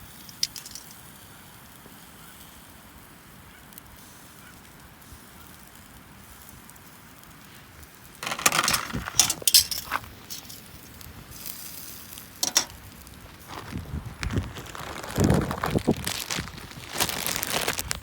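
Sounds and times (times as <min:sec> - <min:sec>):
small hard objects clinking: 0:00.1 - 0:01.1, 0:08.2 - 0:13.6.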